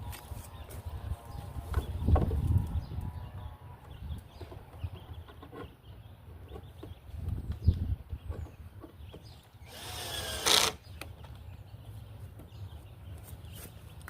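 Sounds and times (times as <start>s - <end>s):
power drill running: 9.6s - 10.8s.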